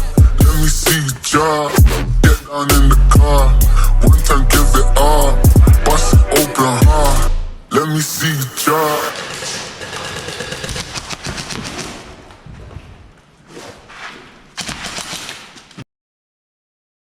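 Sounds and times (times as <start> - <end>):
person speaking: 4.1 - 10.9.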